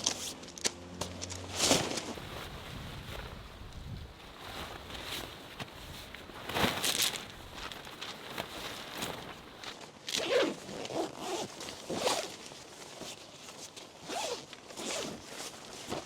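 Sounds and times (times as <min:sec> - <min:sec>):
zipper pulled: 0:10.1 - 0:12.4, 0:14.0 - 0:15.2.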